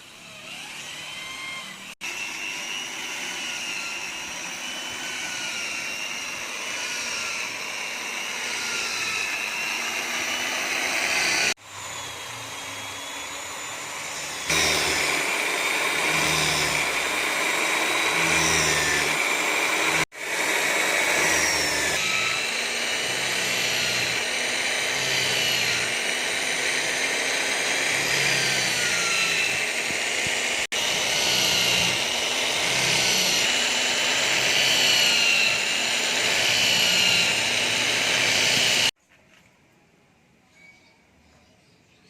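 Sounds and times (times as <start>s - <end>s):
power tool whirring: 0.0s - 39.0s.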